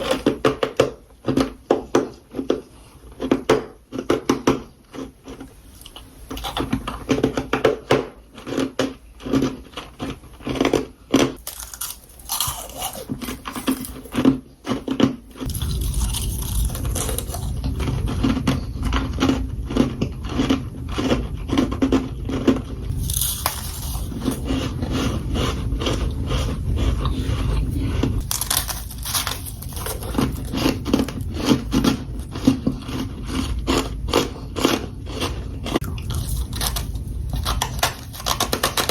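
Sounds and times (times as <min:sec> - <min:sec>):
crunching and chewing frost: 0:00.0 - 0:38.9
low rumble: 0:15.5 - 0:38.4.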